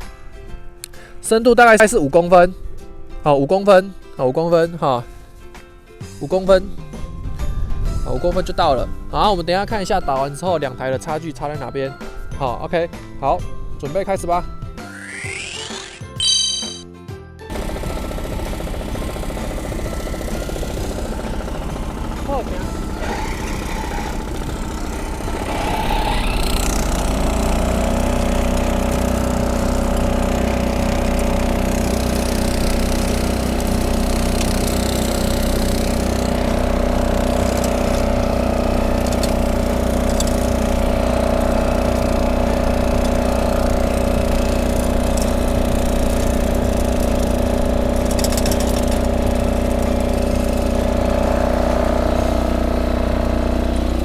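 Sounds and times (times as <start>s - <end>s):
tiller engine running: 14.9s - 16.8s, 17.5s - 54.0s.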